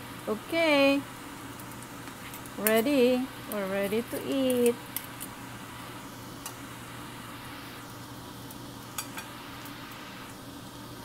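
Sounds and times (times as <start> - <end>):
rice sizzling in a pan: 0.0 - 11.0
metal spoons clinking on pan: 8.9 - 9.3.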